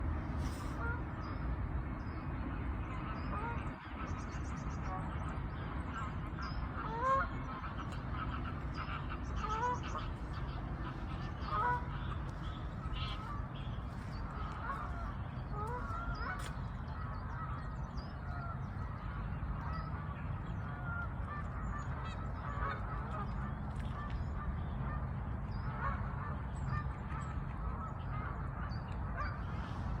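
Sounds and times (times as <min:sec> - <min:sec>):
ducks calling: 0:03.2 - 0:30.0
geese honking: 0:03.3 - 0:23.5.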